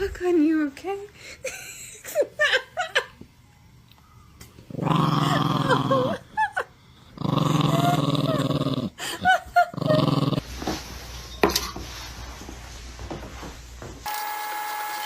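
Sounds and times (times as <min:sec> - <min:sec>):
dog growling: 0:04.7 - 0:06.4, 0:07.0 - 0:10.4.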